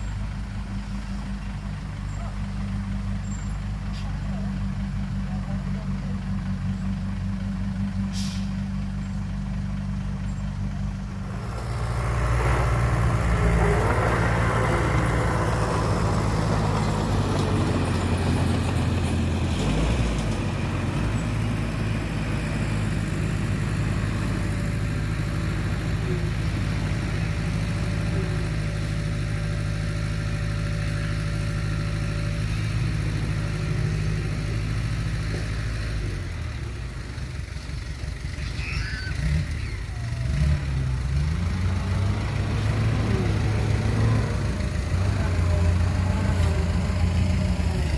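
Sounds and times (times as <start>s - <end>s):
diesel engine running: 0.0s - 47.9s
rough noisy sound: 11.1s - 18.0s.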